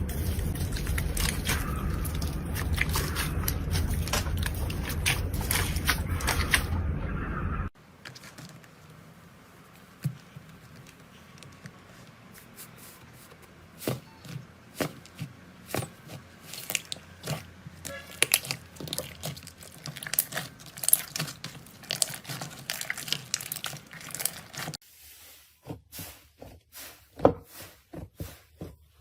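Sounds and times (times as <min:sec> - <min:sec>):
crunchy material crackling: 0:00.0 - 0:06.8, 0:15.8 - 0:24.8
steady low rumble: 0:00.0 - 0:07.8.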